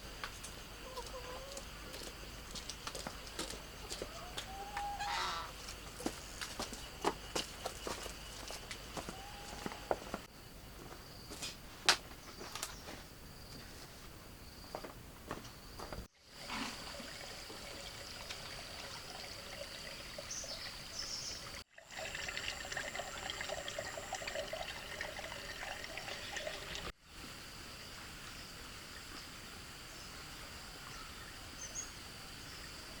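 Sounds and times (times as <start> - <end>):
water trickling and splashing: 16.2 - 27.0.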